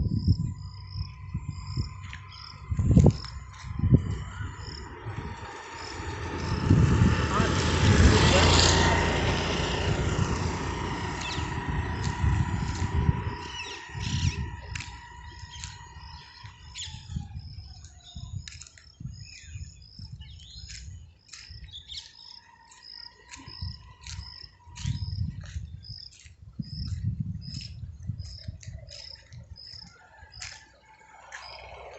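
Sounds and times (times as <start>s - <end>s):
steady drone: 0.0s - 16.8s
small birds chirping: 10.3s - 30.6s.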